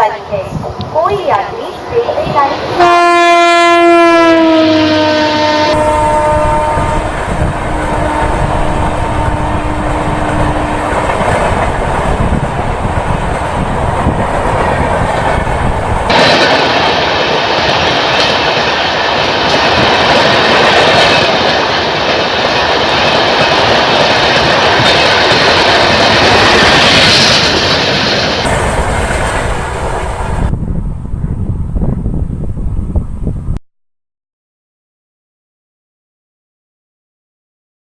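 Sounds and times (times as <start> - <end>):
train passing at speed: 0.0 - 33.5
train horn: 2.6 - 11.3.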